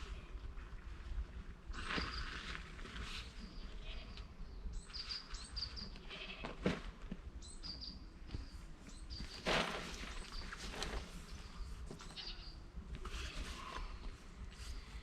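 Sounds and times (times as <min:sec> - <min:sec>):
birds chirping: 0:03.4 - 0:06.4, 0:07.4 - 0:12.7.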